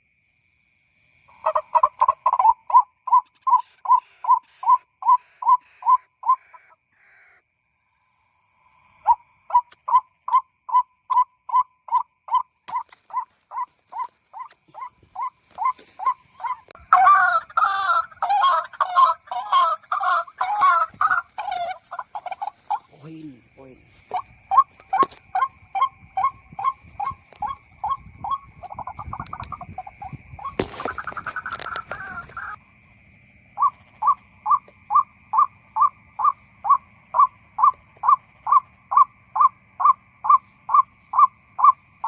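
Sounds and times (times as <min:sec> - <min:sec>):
waterhen calls: 0:01.4 - 0:07.4, 0:09.0 - 0:32.6.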